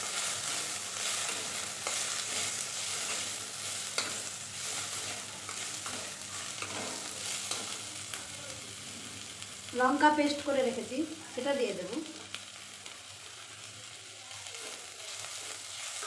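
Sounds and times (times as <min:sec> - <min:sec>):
onion and tomato sizzling in oil: 0:00.0 - 0:16.0
metal spatula scraping and tapping pan: 0:03.9 - 0:04.3, 0:05.5 - 0:07.8.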